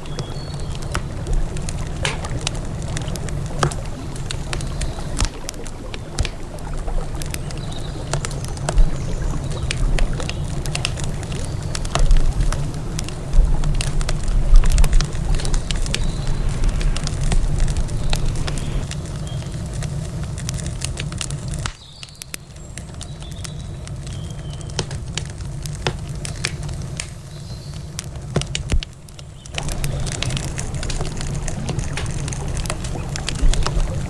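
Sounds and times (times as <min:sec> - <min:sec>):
steady low rumble: 0:00.0 - 0:21.2, 0:29.6 - 0:34.0
campfire crackling and popping: 0:00.0 - 0:34.0.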